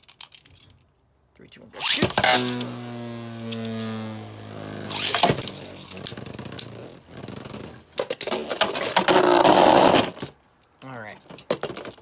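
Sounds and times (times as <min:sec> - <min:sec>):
spinning tops whirring: 0:01.8 - 0:07.1.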